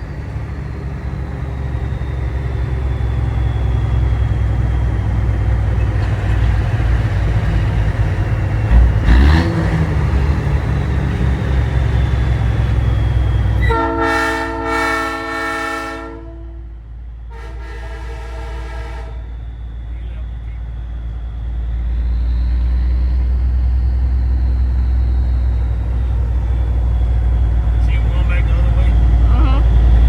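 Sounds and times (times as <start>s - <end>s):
truck diesel engine running: 0.0s - 30.0s
train horn blasts: 13.6s - 19.4s.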